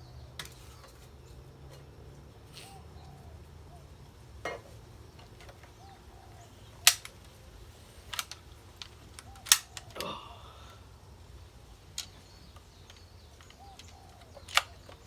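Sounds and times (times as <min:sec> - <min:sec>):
small clicks: 0:06.8 - 0:07.4, 0:08.0 - 0:10.1, 0:11.9 - 0:15.0
air rifle crack: 0:06.8 - 0:10.9.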